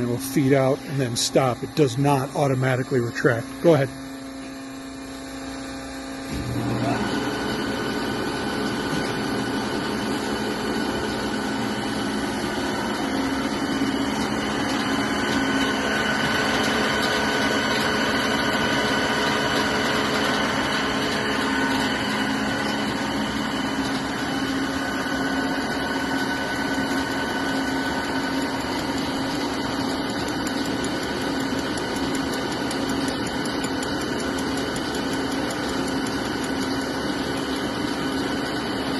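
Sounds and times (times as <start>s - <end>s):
machine whining tones: 0.0s - 37.4s
drilling machine mechanical hum: 0.0s - 38.9s
hydraulic hum: 0.0s - 38.9s.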